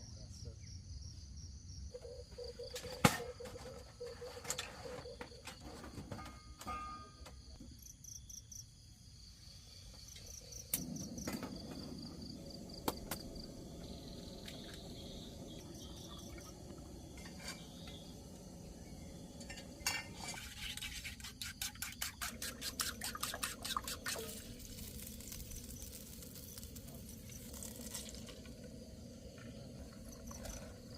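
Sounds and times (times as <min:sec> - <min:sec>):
insects trilling: 0:00.0 - 0:06.1, 0:07.4 - 0:30.9
clinks and clattering: 0:05.4 - 0:07.4.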